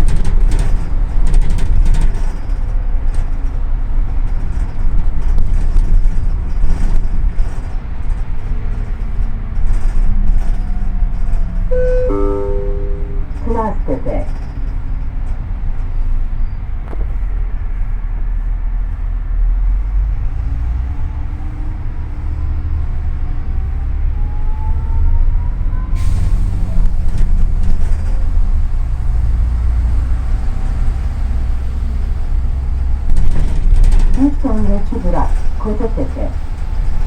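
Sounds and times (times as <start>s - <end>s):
bus engine rumble: 0.0s - 37.0s
rising engine whine: 11.7s - 14.0s.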